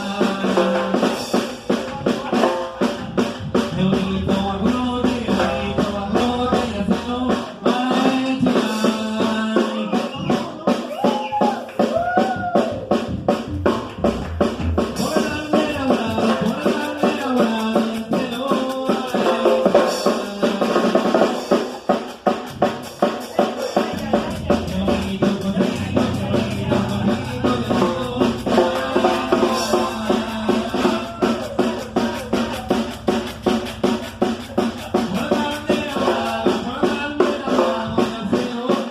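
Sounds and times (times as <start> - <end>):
bass line: 0.0 - 9.5, 11.9 - 18.1, 23.9 - 38.4
drum kit beat: 0.0 - 38.9.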